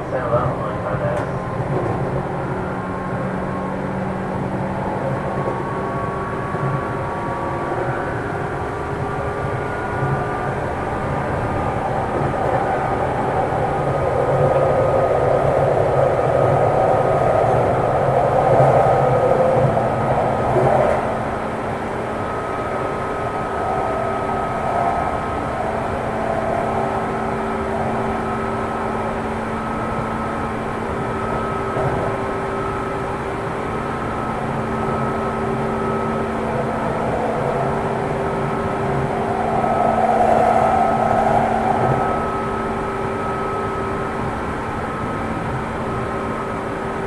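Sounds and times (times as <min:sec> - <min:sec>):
train wheels rumbling on rails: 0:00.0 - 0:47.0
traction motor whine: 0:19.0 - 0:46.6.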